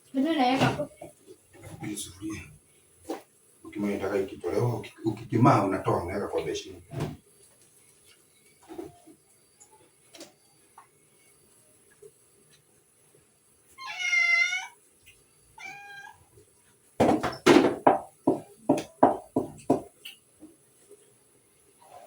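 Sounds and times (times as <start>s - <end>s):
cat meowing: 13.8s - 14.8s, 15.6s - 16.3s.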